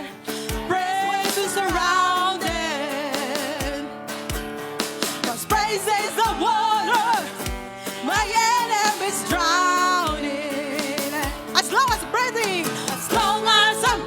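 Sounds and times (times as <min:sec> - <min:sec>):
person singing: 0:00.0 - 0:04.2, 0:05.2 - 0:14.0
praise band playing chords: 0:00.0 - 0:14.0
kick drum beat: 0:03.6 - 0:04.6, 0:07.5 - 0:08.5.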